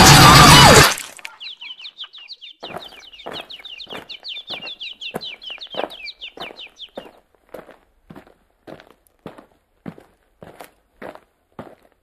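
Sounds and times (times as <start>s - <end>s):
bird twittering high chirps: 1.2s - 7.3s
footsteps: 2.6s - 12.0s.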